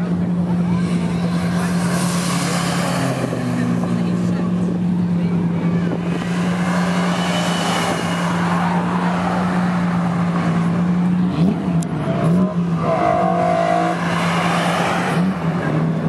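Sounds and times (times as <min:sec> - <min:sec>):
sports car engines revving: 0:00.0 - 0:16.0.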